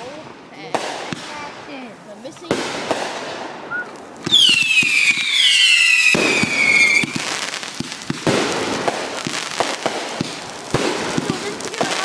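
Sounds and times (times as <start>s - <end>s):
firework crackling pops: 0.0s - 12.0s
firework whistles falling in pitch: 3.7s - 7.2s.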